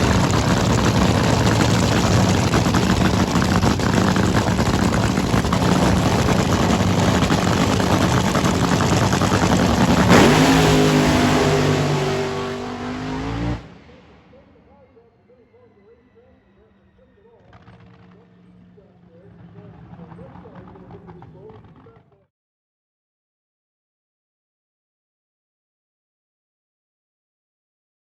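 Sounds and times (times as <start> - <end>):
racing car engine at full power: 0.0 - 14.2.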